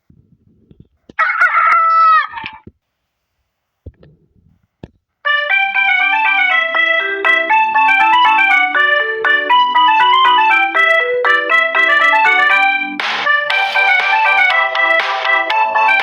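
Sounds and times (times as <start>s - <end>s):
rooster crowing: 1.2s - 2.6s
keyboard melody with bass: 5.3s - 16.0s.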